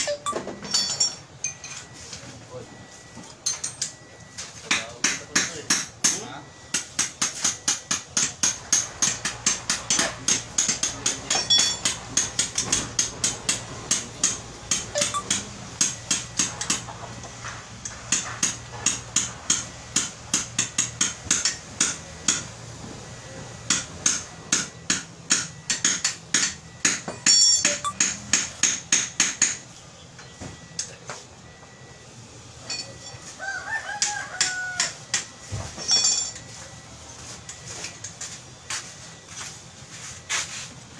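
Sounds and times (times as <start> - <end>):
hammer striking metal: 4.7 - 16.9, 17.8 - 22.5, 23.7 - 29.6.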